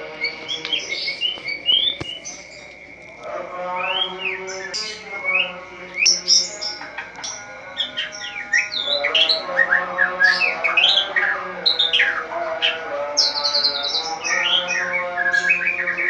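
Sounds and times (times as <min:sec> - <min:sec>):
bird singing whistles and chatter: 0:00.0 - 0:16.0.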